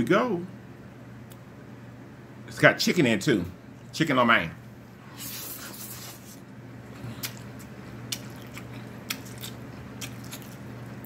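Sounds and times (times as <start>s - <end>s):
noodles slurped: 5.1s - 7.5s
chewing with lip smacks: 5.2s - 11.0s.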